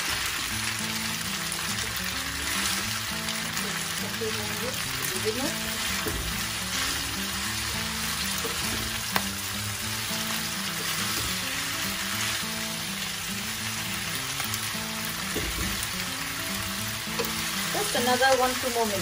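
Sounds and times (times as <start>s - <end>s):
background music: 0.0s - 19.0s
food sizzling in a frying pan: 0.0s - 19.0s.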